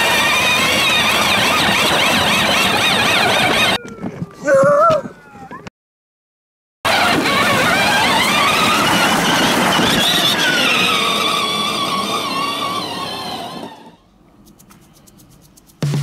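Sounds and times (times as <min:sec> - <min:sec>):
siren wailing: 0:00.0 - 0:05.7.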